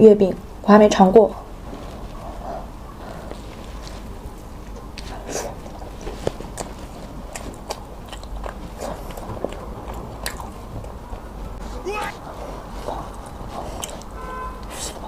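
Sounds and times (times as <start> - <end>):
person chewing: 3.3 - 11.0, 11.6 - 15.0
mouth clicks and smacks: 4.6 - 11.0.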